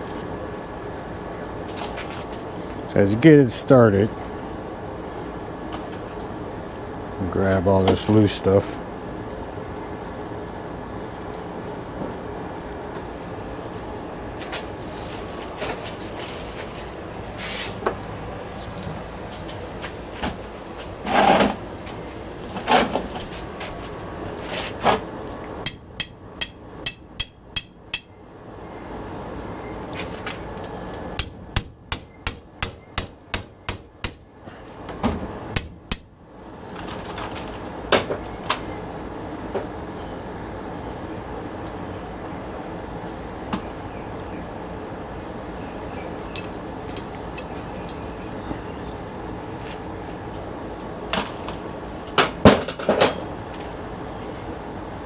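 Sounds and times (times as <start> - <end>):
hammer striking metal: 25.6 - 28.2, 31.2 - 34.2, 35.6 - 36.2.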